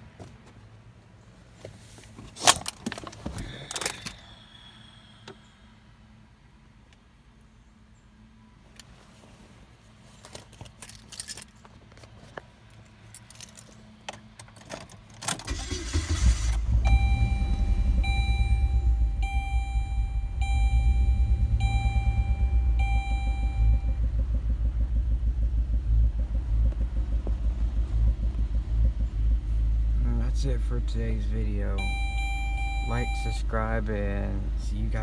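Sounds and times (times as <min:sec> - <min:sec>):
car engine starting and idling: 0:02.1 - 0:06.5, 0:12.7 - 0:35.0
car keys jangling: 0:10.2 - 0:24.0
dashboard warning chime: 0:15.5 - 0:24.9, 0:30.1 - 0:35.0.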